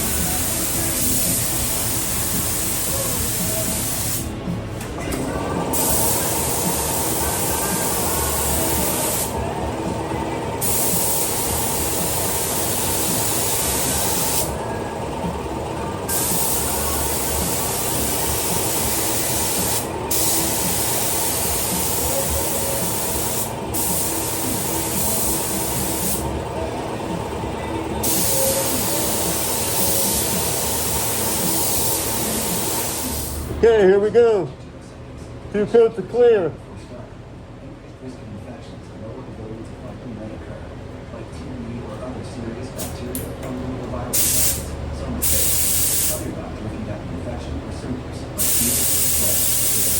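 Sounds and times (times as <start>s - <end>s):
paint spray gun hissing: 0.0s - 4.3s, 5.7s - 9.4s, 10.6s - 14.5s, 16.1s - 26.3s, 28.0s - 33.5s, 44.2s - 46.2s, 48.4s - 49.9s
steady hum: 0.0s - 49.9s.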